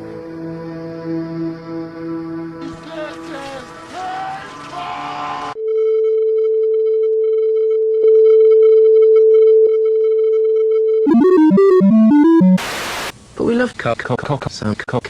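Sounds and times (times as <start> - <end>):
electronic beep tone: 11.0 - 13.1
short electronic notes: 11.1 - 13.1.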